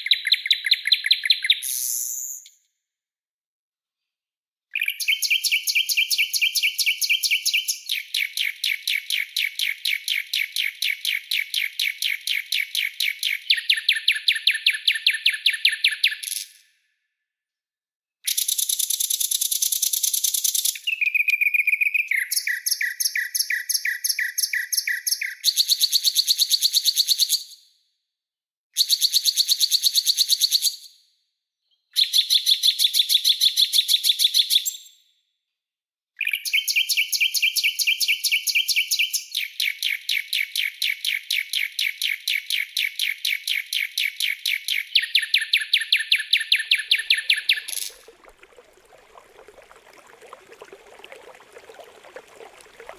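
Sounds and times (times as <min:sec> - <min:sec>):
songbird rapid rasping calls: 0:46.6 - 0:47.9.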